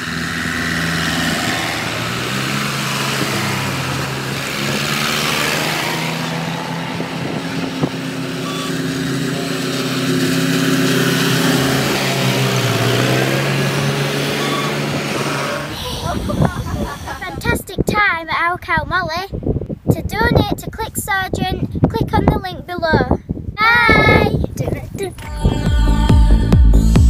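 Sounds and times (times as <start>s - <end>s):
tractor engines running: 0.0s - 18.2s.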